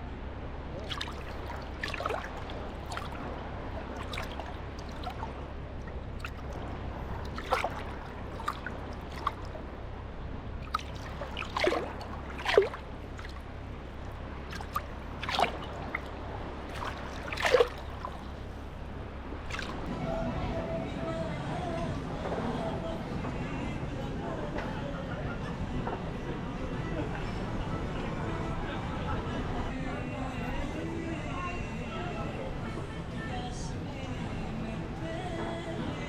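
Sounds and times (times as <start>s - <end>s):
sea water lapping at shoreline: 0.7s - 19.9s
water gurgles and splashes: 0.7s - 19.9s.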